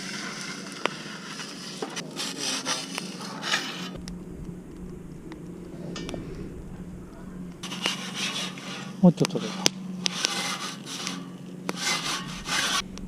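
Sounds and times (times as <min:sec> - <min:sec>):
rough scraping and rubbing: 0:00.0 - 0:04.1, 0:04.8 - 0:13.0
low hum: 0:03.0 - 0:13.0.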